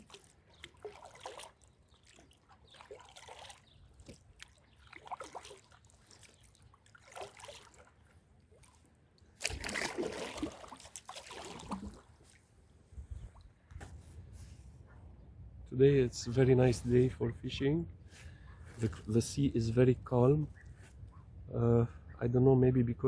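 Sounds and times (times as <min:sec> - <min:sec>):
water splashing: 0:00.0 - 0:12.3
water lapping around kayak: 0:00.0 - 0:15.0, 0:17.9 - 0:19.4.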